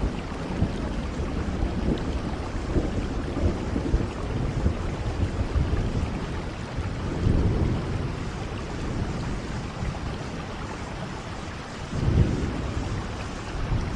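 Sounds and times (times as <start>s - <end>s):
steady rain: 0.0s - 13.9s.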